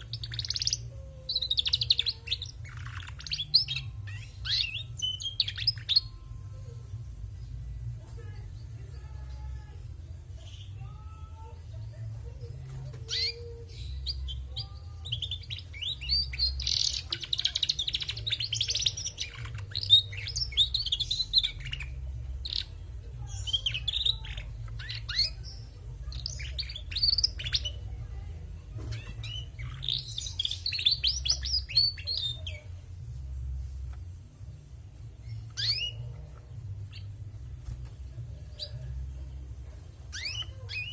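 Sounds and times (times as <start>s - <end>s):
canary twittering: 0.0s - 6.4s, 12.8s - 28.0s, 28.8s - 33.9s, 35.1s - 40.9s
steady low hum: 2.4s - 40.9s.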